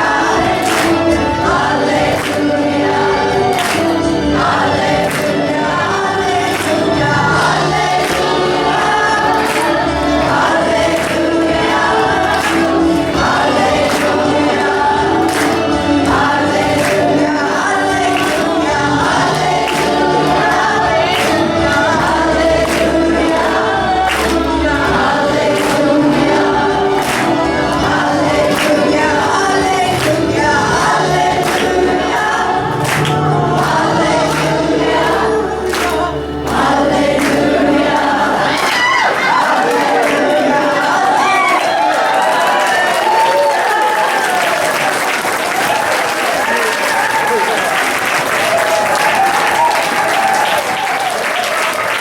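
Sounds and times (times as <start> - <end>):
accompaniment with steady beat: 0.0 - 38.5
choir singing: 0.0 - 52.0.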